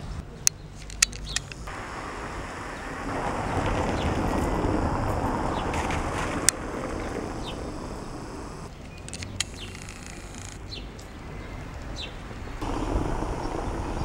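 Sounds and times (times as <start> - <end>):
street ambience: 0.0 - 14.0
small bird chirping: 0.3 - 1.7, 6.9 - 14.0.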